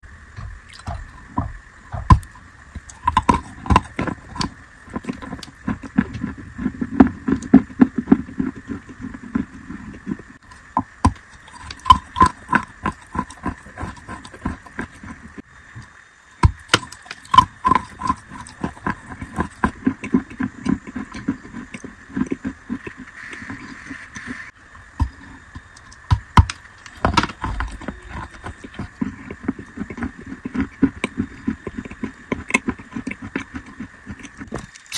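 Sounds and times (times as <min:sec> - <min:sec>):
chalk being chewed: 0:02.8 - 0:10.6, 0:11.2 - 0:15.4, 0:16.8 - 0:24.4, 0:26.8 - 0:34.9.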